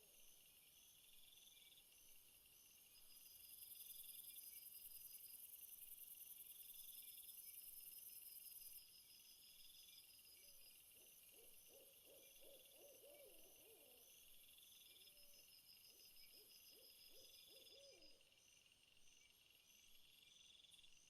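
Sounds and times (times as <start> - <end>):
crickets chirping: 0.0 - 21.0
faint owl hooting: 11.4 - 14.0, 16.5 - 18.2.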